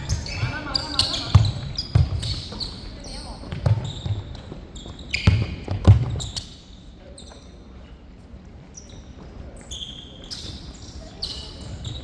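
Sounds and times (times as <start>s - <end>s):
ball bouncing on hall floor: 0.0s - 6.5s
shoes squeaking on court: 0.0s - 7.6s, 8.8s - 12.0s.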